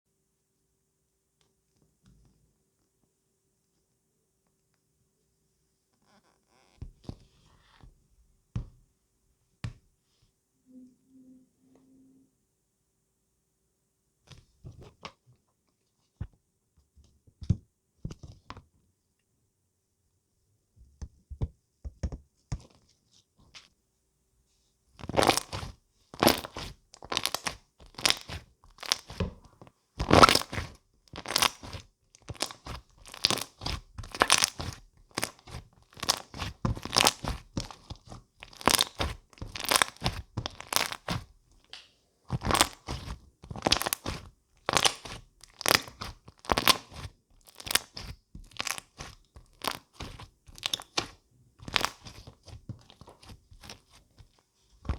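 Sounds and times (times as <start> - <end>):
crackly popping and crunching: 25.0 - 54.9.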